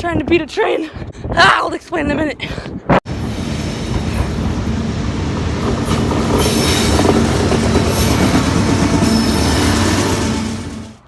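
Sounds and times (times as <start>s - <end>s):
train rumbling past: 3.1s - 11.0s.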